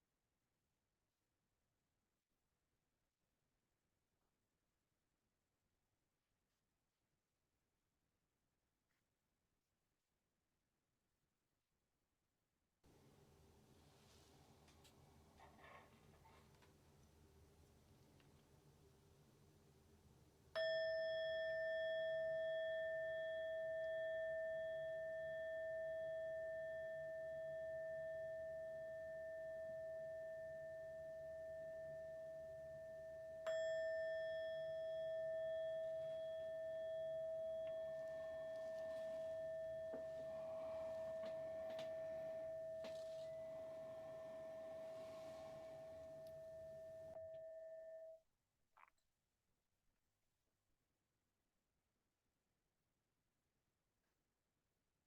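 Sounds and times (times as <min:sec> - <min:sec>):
meditation bell ringing: 0:20.6 - 0:48.2.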